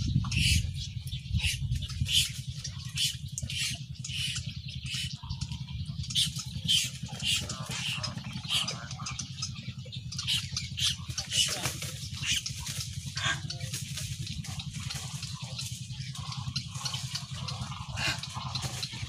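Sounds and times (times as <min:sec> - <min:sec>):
birds chirping: 0:00.0 - 0:19.0
low rumble on microphone: 0:00.0 - 0:19.0.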